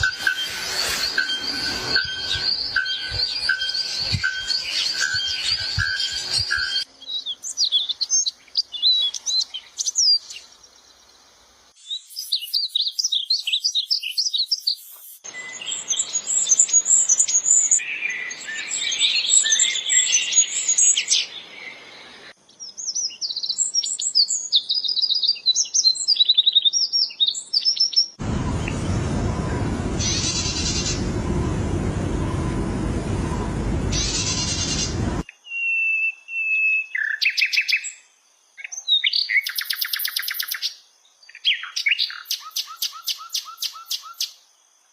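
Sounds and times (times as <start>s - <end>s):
steady noise: 0.0s - 6.8s, 28.2s - 35.2s
songbirds chirping and trilling: 0.0s - 31.2s, 33.4s - 44.5s.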